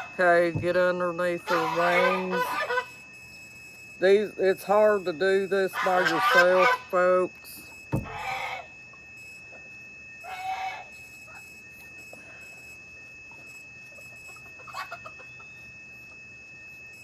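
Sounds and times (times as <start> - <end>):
chicken squawk: 1.5 - 2.9, 5.7 - 6.9, 8.0 - 8.7, 10.2 - 11.4, 14.3 - 15.5
chickens clucking: 1.5 - 2.9, 5.7 - 7.0, 8.0 - 8.7, 10.2 - 11.4, 13.3 - 15.7.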